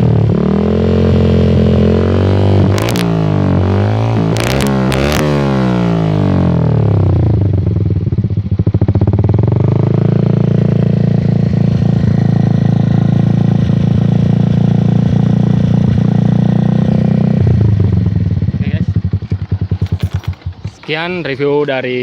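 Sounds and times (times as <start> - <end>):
motorcycle engine idling: 6.4 - 15.6, 17.5 - 22.0.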